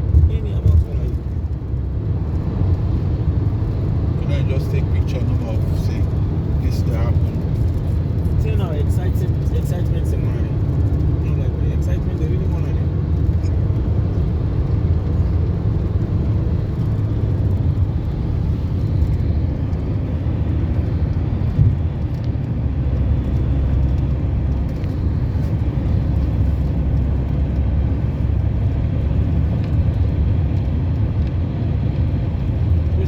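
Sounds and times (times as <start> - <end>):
car driving rumble: 0.0 - 33.0.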